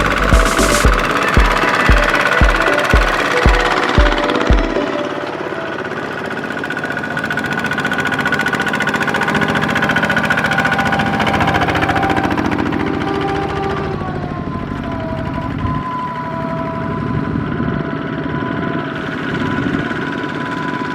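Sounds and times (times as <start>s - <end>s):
heavy background music beat: 0.0s - 5.8s
farm machine engine running: 0.0s - 15.5s, 16.7s - 20.9s.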